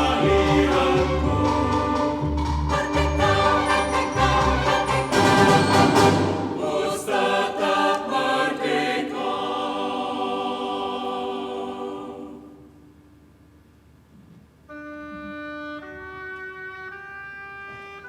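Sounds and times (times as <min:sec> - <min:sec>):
orchestra and choir chords: 0:00.0 - 0:12.8.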